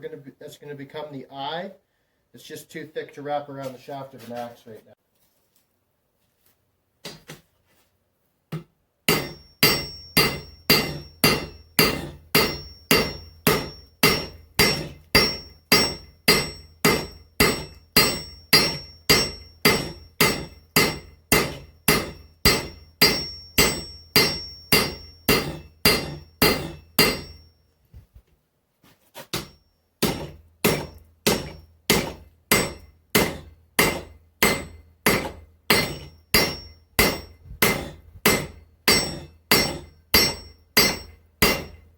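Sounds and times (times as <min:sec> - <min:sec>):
hammer striking steel on anvil: 0:09.1 - 0:27.5, 0:29.3 - 0:41.9.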